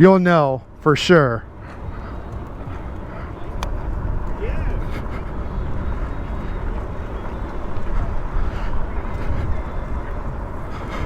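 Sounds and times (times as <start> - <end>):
wind rumbling on microphone: 0.6 - 11.0.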